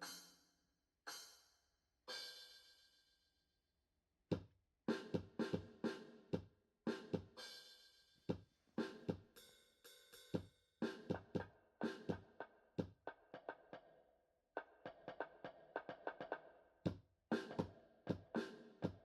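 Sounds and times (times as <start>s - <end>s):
background music with drum beat: 4.3s - 13.6s, 15.0s - 19.0s.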